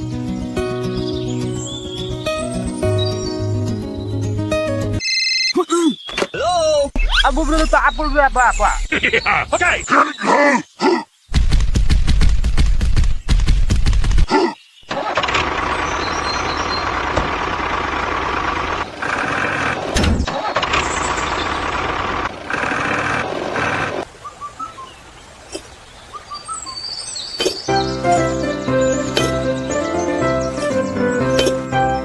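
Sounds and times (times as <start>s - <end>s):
faint bird chirps: 5.1s - 11.3s, 24.2s - 31.8s
loud machine engine noise: 15.2s - 24.0s.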